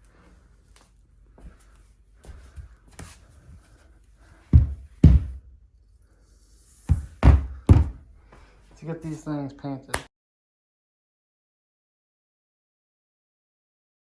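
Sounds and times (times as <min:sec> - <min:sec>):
heavy short thumps: 0:04.6 - 0:05.5, 0:06.9 - 0:08.0.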